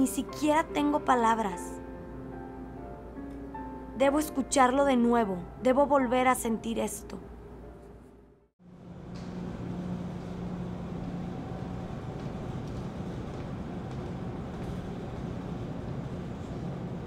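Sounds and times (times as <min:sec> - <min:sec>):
low hum: 0:07.2 - 0:17.0.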